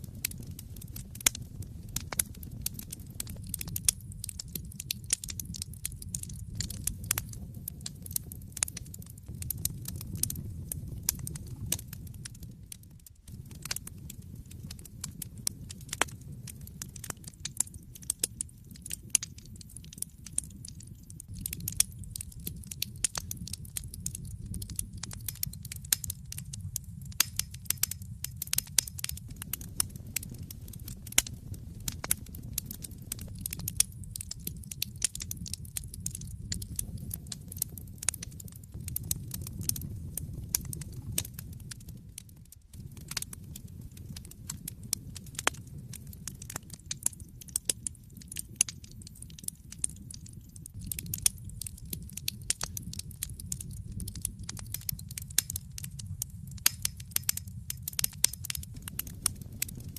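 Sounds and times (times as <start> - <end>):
low rumble of flames: 0.0 - 59.9
wood fire crackling: 0.0 - 59.9.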